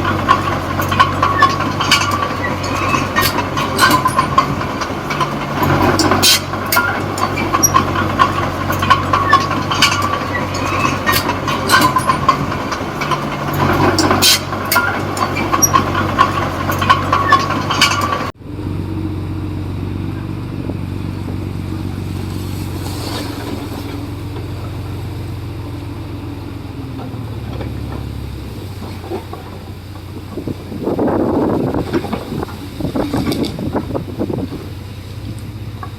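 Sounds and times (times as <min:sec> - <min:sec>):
tracks and blade clanking: 0:00.0 - 0:18.4
bulldozer diesel engine running: 0:00.0 - 0:35.9.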